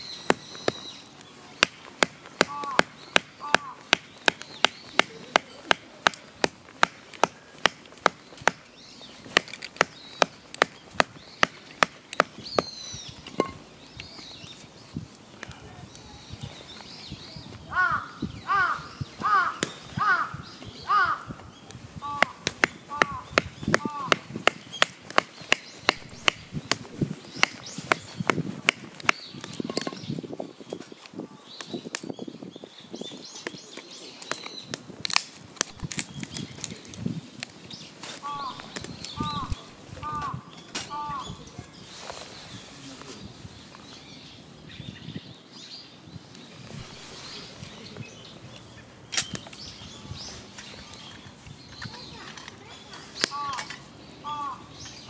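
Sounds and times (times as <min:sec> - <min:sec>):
faint birds chirping: 0:00.0 - 0:55.0
sharp chopping strokes: 0:22.2 - 0:29.2.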